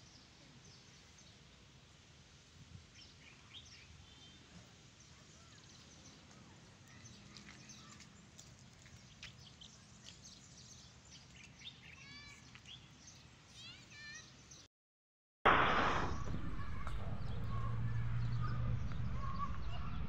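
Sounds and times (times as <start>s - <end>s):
faint birds chirping: 2.8s - 14.7s, 16.1s - 20.0s.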